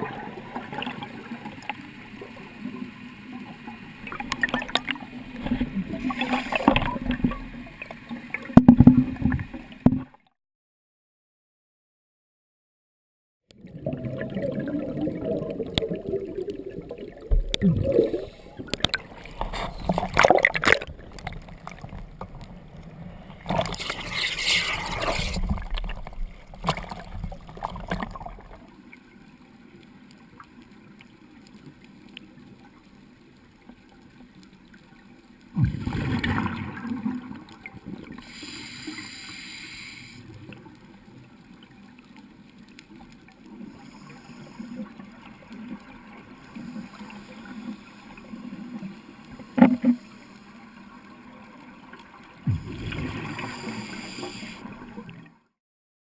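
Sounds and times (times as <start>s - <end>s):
underwater bubbles gurgling: 0.0s - 10.2s, 13.5s - 55.5s.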